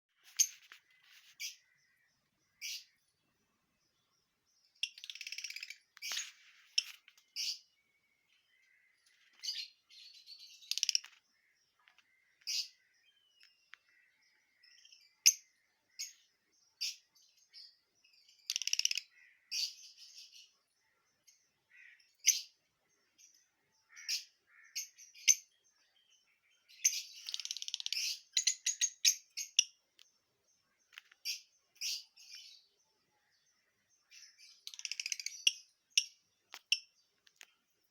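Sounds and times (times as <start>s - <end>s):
parrots chirping and squawking: 26.9s - 29.6s.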